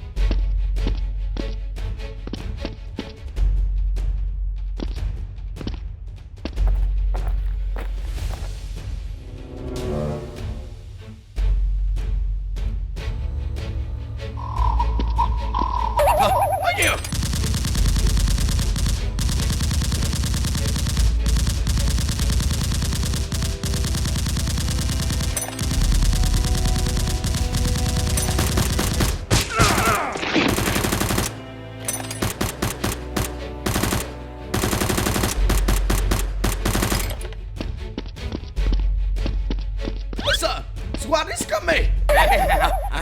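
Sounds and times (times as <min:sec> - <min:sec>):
automatic gunfire: 0:16.9 - 0:31.4, 0:32.2 - 0:37.2.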